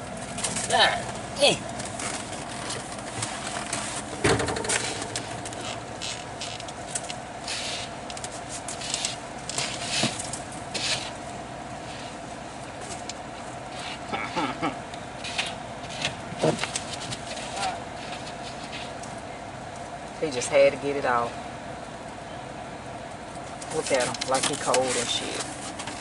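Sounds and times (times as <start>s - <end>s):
vehicle engine hum: 0.0s - 26.0s
loud thump: 4.2s - 5.4s.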